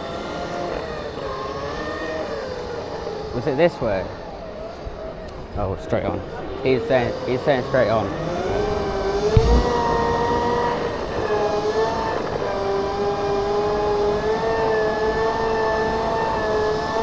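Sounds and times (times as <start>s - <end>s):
low thump: 9.3s - 10.0s.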